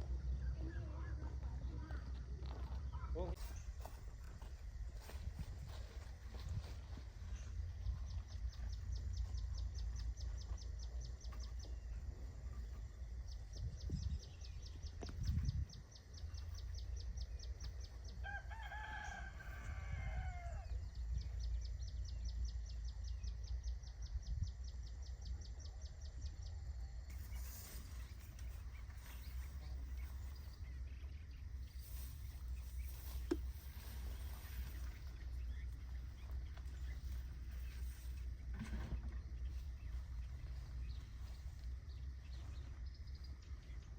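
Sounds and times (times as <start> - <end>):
steady low rumble: 0.0 - 43.9
rooster crowing: 18.2 - 20.9.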